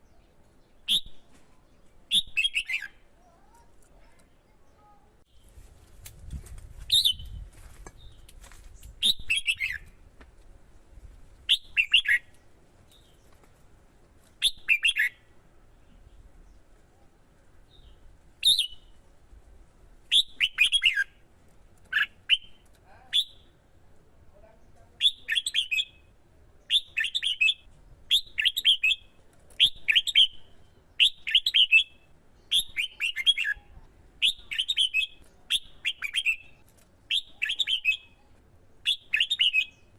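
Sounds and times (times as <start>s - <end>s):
bulbul singing warbled phrases: 2.1s - 5.4s, 9.0s - 9.8s, 11.5s - 12.3s, 14.4s - 16.2s, 20.1s - 21.2s, 21.9s - 23.6s, 24.4s - 39.9s.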